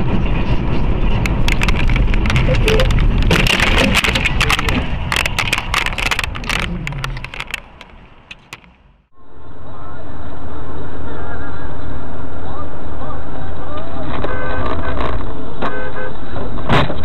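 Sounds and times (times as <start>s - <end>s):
sharp clicks and knocks: 0.8s - 9.0s.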